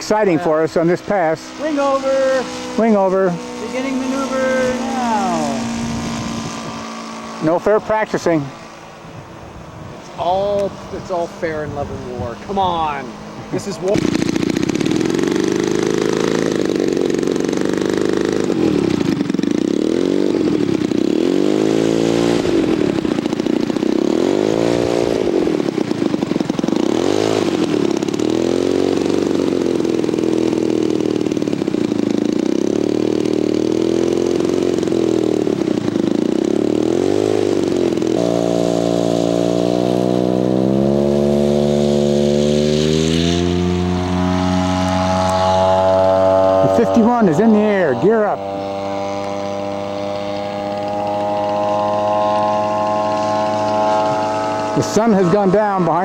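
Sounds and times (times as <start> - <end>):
model plane engine swooping: 0.0 - 56.0.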